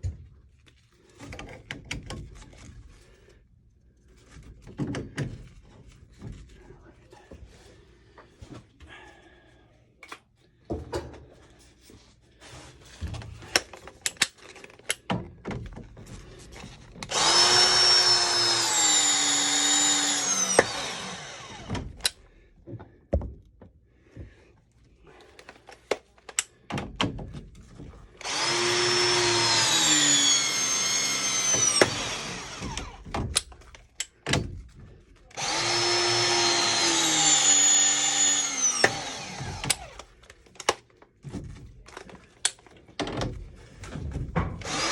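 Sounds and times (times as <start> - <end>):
clicks and knocks of tools: 13.0 - 15.8, 25.2 - 27.2, 31.6 - 34.8, 38.8 - 44.7
pressing tool motor whine: 17.1 - 21.9, 28.2 - 33.1, 35.4 - 40.0, 44.6 - 44.9.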